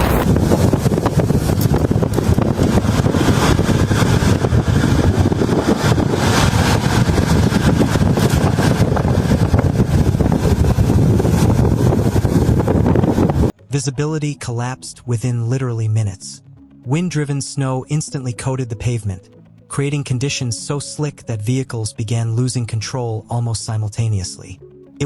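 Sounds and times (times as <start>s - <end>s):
highway traffic rumble: 0.0s - 13.5s
wind noise on microphone: 0.0s - 13.6s.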